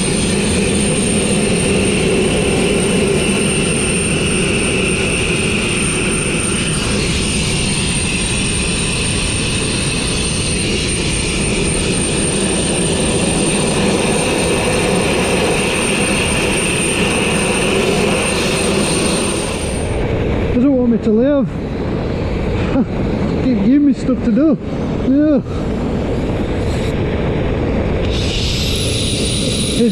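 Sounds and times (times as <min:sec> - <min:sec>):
blast nozzle rushing hiss: 0:28.0 - 0:29.9.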